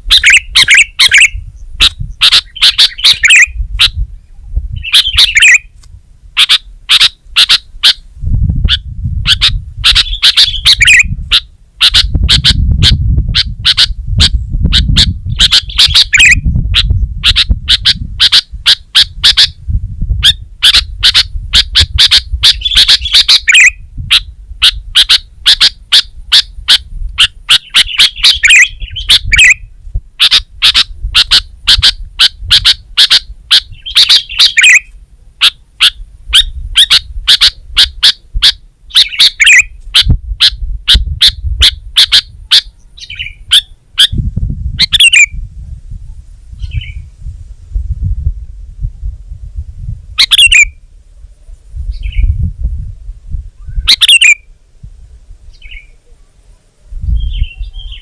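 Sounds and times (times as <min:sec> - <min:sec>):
bulbul singing: 0:00.0 - 0:04.0, 0:04.7 - 0:05.8, 0:06.4 - 0:08.0, 0:08.6 - 0:19.6, 0:20.2 - 0:45.4, 0:50.2 - 0:50.8, 0:53.6 - 0:54.5.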